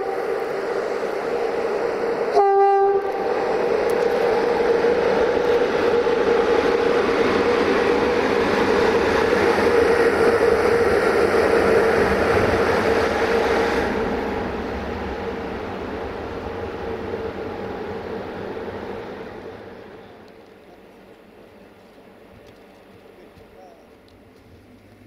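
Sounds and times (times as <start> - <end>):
train horn blast: 0.0 - 0.3, 2.3 - 3.4
train rumbling past: 0.0 - 25.0.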